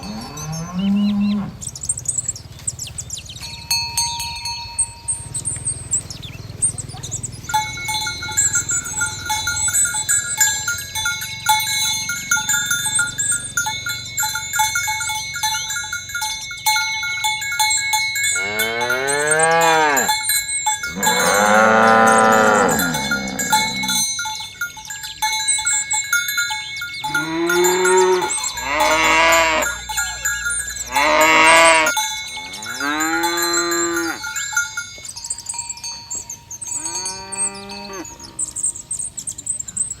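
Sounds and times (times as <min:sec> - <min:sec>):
cattle mooing: 0:00.0 - 0:01.7, 0:18.4 - 0:20.2, 0:20.9 - 0:24.0, 0:27.1 - 0:29.8, 0:30.8 - 0:34.3, 0:36.8 - 0:38.5
cowbells clinking: 0:00.0 - 0:40.0.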